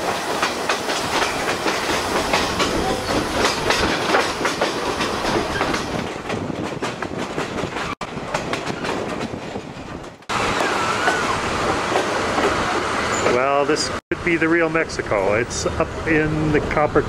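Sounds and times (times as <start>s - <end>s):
train wheels clattering on track: 0.0s - 13.5s.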